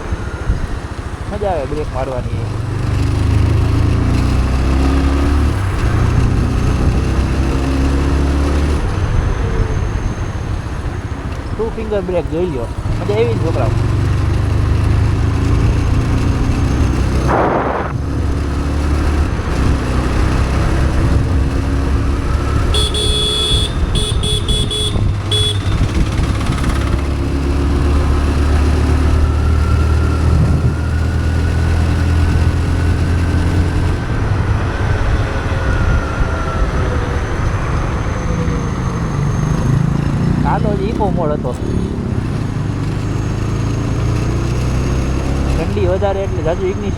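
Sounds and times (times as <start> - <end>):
motorcycle engine running: 0.0 - 46.9
road and wind noise: 0.0 - 46.9
vehicle horn short beeps: 22.7 - 26.0.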